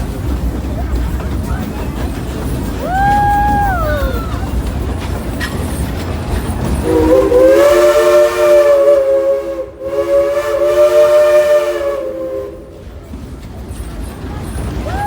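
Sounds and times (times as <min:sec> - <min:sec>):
train running rumble: 0:00.0 - 0:15.0
steam locomotive chime whistle: 0:06.8 - 0:12.9.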